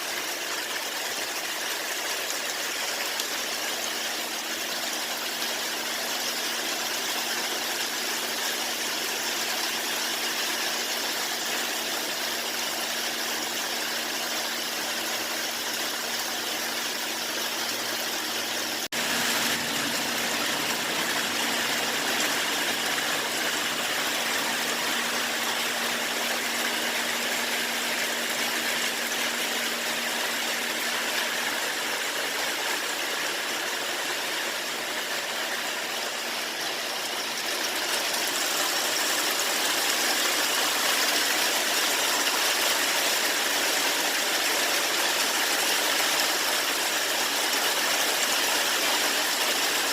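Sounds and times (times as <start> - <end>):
rain falling: 16.1 - 49.9.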